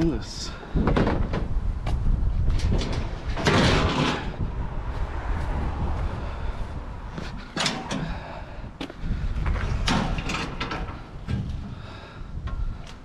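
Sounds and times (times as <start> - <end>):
low rumble: 0.9 - 13.0
scrap items clattering: 3.4 - 4.4.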